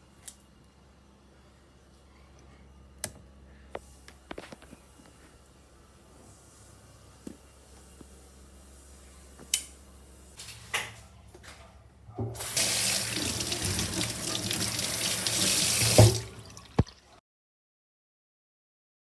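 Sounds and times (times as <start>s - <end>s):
water running: 12.3s - 17.2s.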